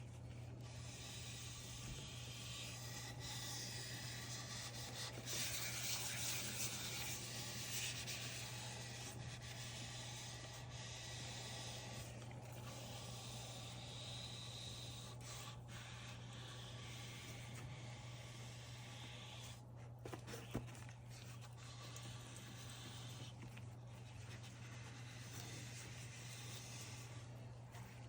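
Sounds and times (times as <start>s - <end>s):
low steady hum: 0.0s - 28.0s
rubbing on wooden bowl: 20.4s - 28.0s.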